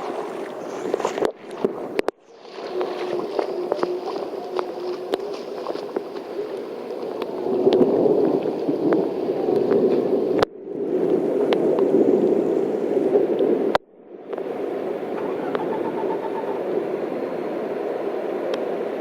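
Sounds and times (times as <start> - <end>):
floodwater running and gurgling: 0.0 - 19.0
heavy rain pouring: 2.4 - 10.5.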